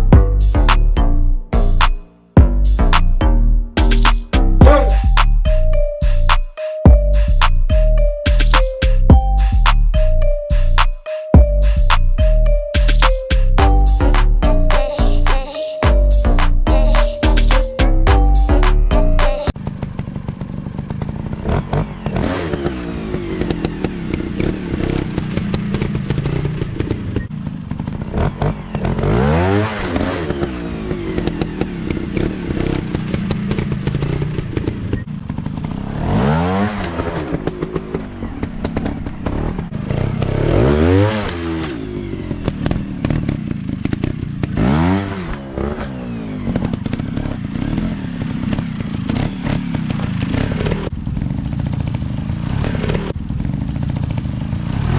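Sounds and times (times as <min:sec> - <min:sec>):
dirt bike engines revving: 0:18.6 - 0:54.9.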